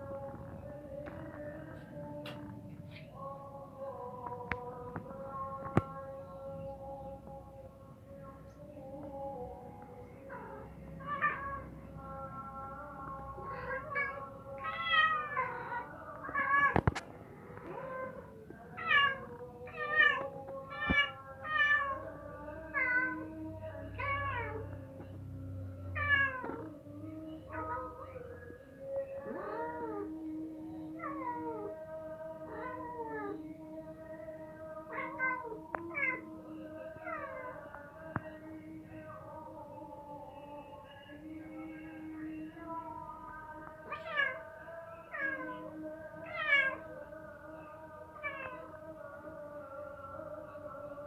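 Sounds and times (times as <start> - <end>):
cat meowing: 10.3 - 11.7, 13.4 - 17.0, 17.6 - 22.1, 22.7 - 23.3, 26.0 - 26.7, 27.5 - 28.0, 29.2 - 30.1, 30.9 - 31.7, 32.4 - 33.4, 34.9 - 36.3, 37.0 - 37.7, 43.8 - 44.5, 45.1 - 47.0, 48.2 - 48.8.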